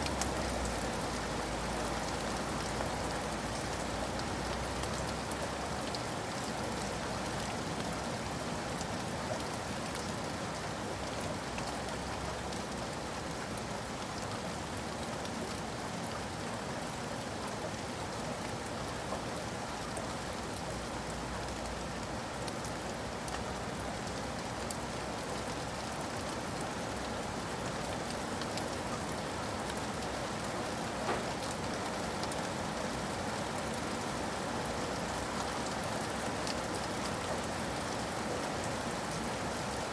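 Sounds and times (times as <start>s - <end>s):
rain drop clicks: 0.0s - 6.1s, 27.9s - 34.1s
rain hissing on a surface: 0.0s - 39.9s.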